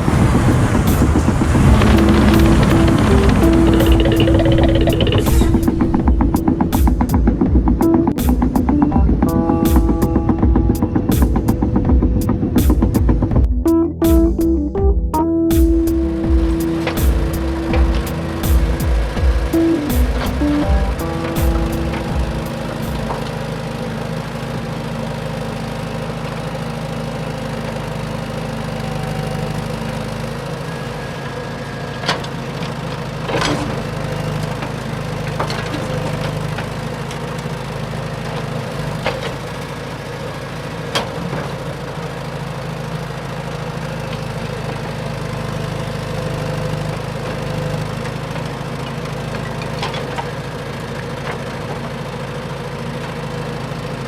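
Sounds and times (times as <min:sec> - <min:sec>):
toy truck engine hum: 0:27.3 - 0:37.5.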